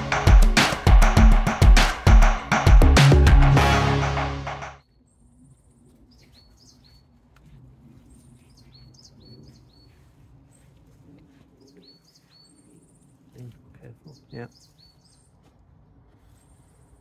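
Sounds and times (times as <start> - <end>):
songbird trills and chirps: 4.8 - 7.2, 8.0 - 13.4, 14.0 - 15.4.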